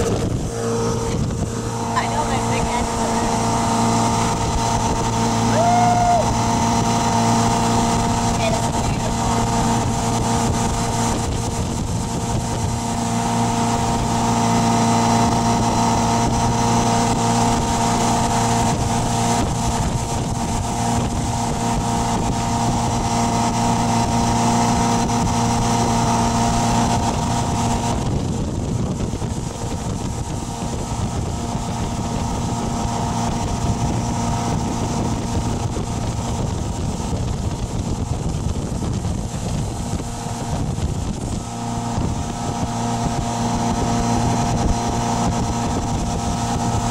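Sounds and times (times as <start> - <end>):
boat engine running: 0.0 - 46.9
wind on microphone: 0.0 - 46.9.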